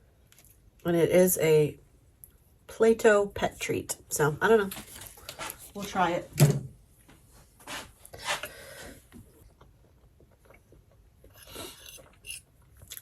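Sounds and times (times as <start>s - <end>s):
rustling handling noise: 4.6s - 6.1s.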